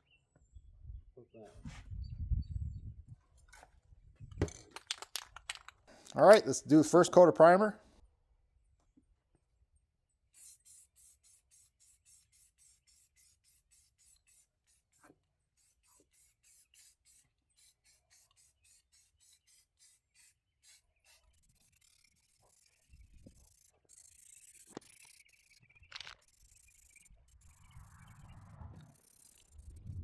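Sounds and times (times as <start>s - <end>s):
spray paint bursts hissing: 10.4s - 29.8s.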